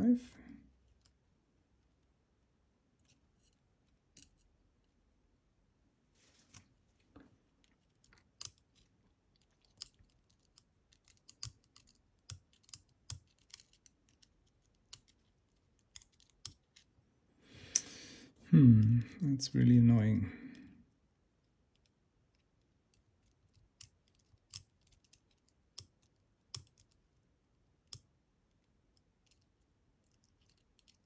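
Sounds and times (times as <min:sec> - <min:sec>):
lock parts clicking and scraping: 0:03.0 - 0:04.5, 0:07.6 - 0:16.9, 0:29.0 - 0:31.0.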